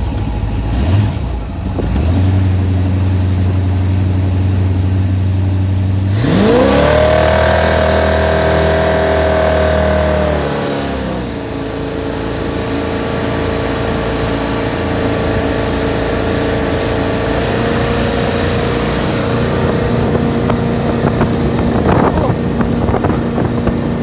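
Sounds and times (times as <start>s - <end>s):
jet boat engine: 0.0s - 24.0s
constant rushing noise: 6.0s - 24.0s.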